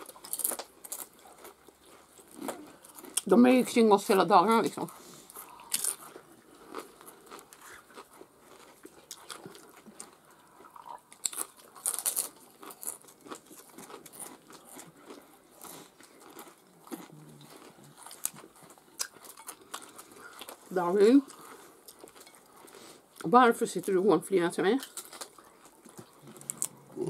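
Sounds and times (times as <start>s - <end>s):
chewing and crunching chips: 0.0s - 27.0s
mouth sounds: 26.2s - 27.0s.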